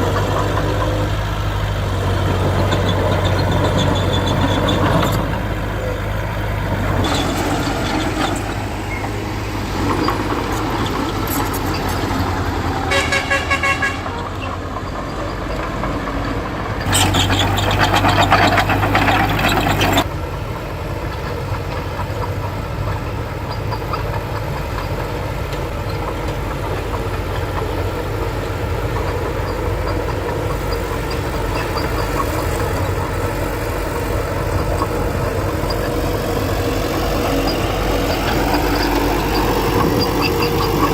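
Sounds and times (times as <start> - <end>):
heavy diesel engines running: 0.0 - 40.9
short horn toot: 12.9 - 14.2.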